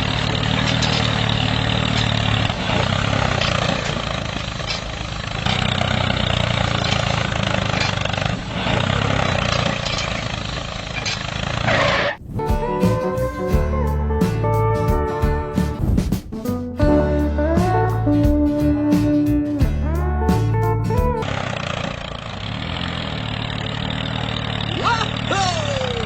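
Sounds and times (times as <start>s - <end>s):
small tractor engine running: 0.0s - 12.2s, 21.2s - 26.0s.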